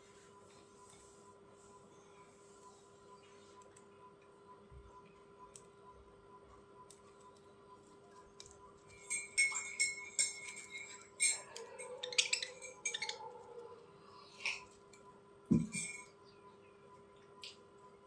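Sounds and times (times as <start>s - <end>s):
budgerigars chirping and chattering: 11.4s - 13.4s.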